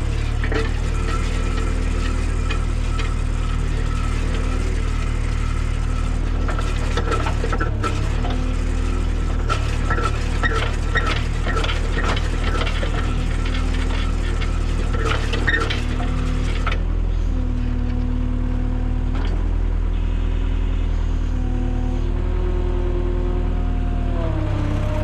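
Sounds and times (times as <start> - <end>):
auger rattling and clanking: 0.0 - 16.8
skid steer engine running: 0.0 - 25.0.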